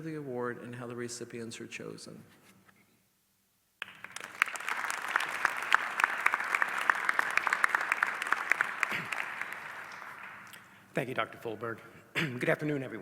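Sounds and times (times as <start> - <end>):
audience applauding: 3.8 - 10.6.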